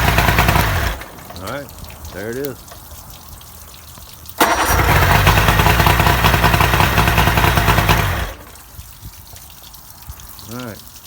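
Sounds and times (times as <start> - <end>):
outboard motor running loudly: 0.0 - 1.0, 4.4 - 8.4.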